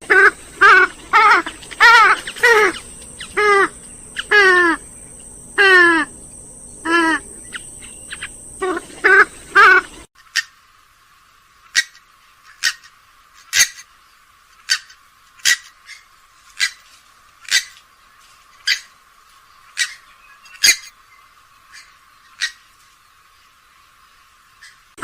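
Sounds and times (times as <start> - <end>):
swamphen short sharp calls: 0.0 - 10.6.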